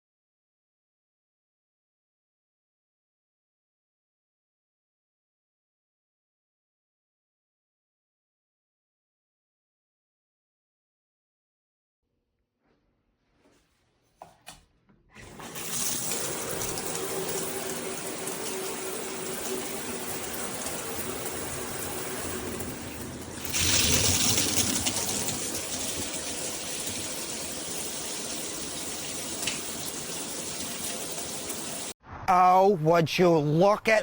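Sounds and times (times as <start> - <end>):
shower water spraying: 15.2 - 32.0.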